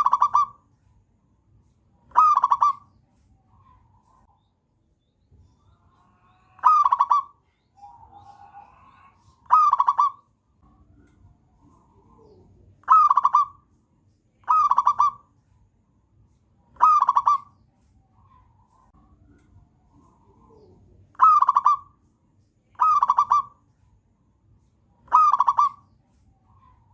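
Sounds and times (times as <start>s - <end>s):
dove cooing: 0.0s - 0.6s, 2.1s - 2.8s, 6.3s - 10.2s, 11.7s - 13.6s, 14.4s - 15.2s, 16.8s - 17.5s, 20.0s - 22.0s, 22.8s - 23.6s, 25.1s - 25.8s.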